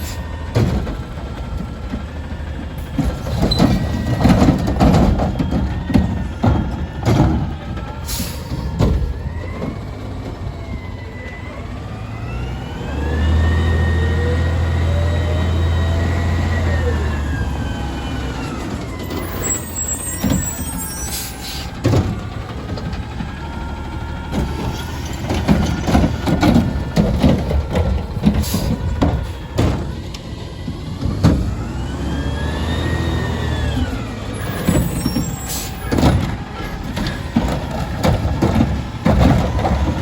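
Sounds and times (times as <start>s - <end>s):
metal clanks and bangs: 0.0s - 9.8s, 24.2s - 31.7s, 34.3s - 40.0s
diesel engine revving: 0.0s - 40.0s.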